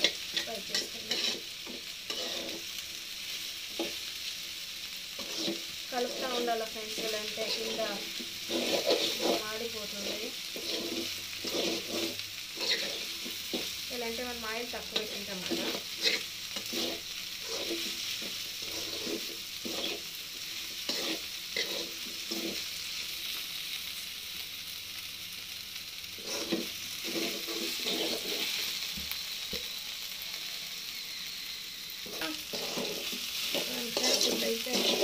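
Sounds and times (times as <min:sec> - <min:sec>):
metal spatula scraping pan: 0:00.0 - 0:02.7, 0:05.2 - 0:13.7, 0:14.8 - 0:22.7, 0:26.2 - 0:28.8, 0:32.0 - 0:35.0
okra sizzling in oil: 0:00.0 - 0:35.0.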